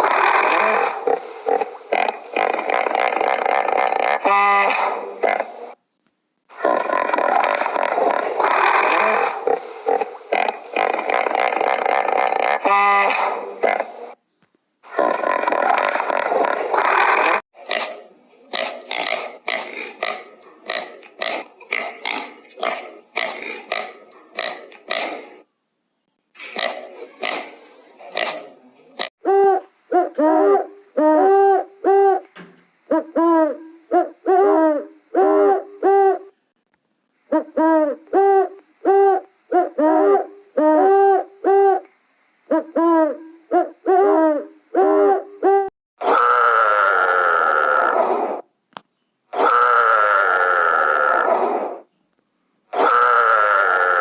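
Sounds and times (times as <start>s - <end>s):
harsh drawn-out animal call: 0.0s - 5.8s, 6.5s - 14.2s, 14.8s - 25.5s, 26.4s - 32.3s, 42.5s - 48.5s, 49.3s - 51.9s, 52.7s - 54.0s
hooting animal calls: 6.5s - 14.2s, 32.9s - 36.3s, 42.5s - 48.4s, 49.3s - 51.9s, 52.7s - 54.0s.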